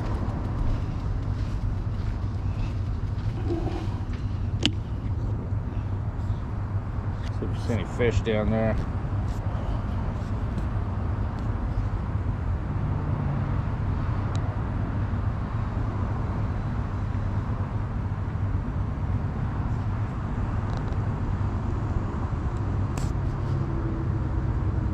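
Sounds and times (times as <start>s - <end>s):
wind noise on microphone: 0.0s - 7.6s.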